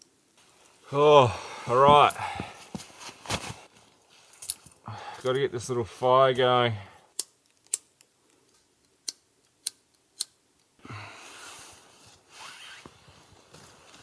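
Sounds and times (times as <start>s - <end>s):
sharp clicks while lighting campfire: 7.1s - 10.4s
rustling hiss: 10.9s - 14.0s.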